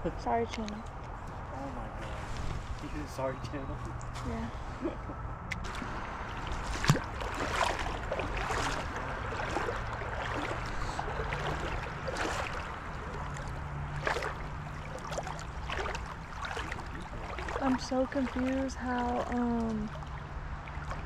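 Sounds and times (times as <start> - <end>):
creek water running: 5.5 - 21.0
legs splashing through water: 5.5 - 21.0.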